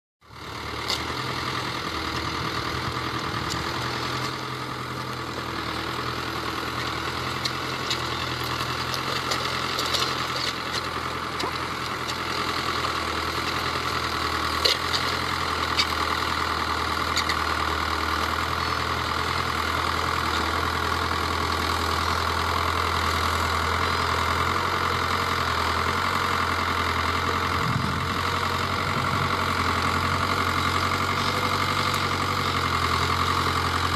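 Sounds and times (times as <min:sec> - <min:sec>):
tractor engine running: 0:00.2 - 0:33.9.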